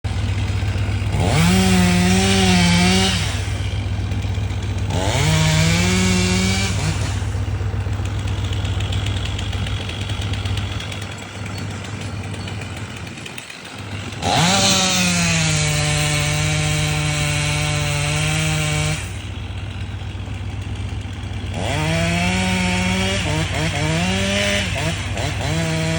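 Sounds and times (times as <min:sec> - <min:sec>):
chainsaw idling and revving: 0:00.0 - 0:25.9.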